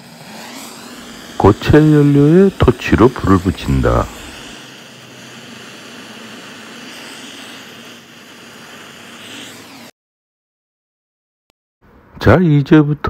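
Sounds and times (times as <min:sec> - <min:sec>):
gas torch flame hissing: 0:00.0 - 0:09.9.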